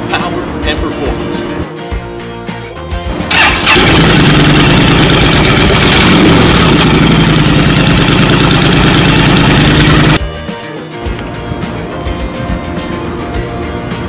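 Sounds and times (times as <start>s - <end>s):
motorcycle engine idling: 3.3s - 10.2s.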